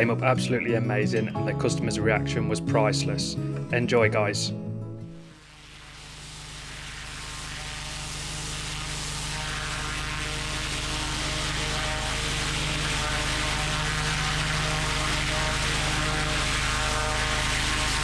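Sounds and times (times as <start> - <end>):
pressure washer engine drone: 5.4 - 18.0
water spray hissing on paving: 5.5 - 18.0.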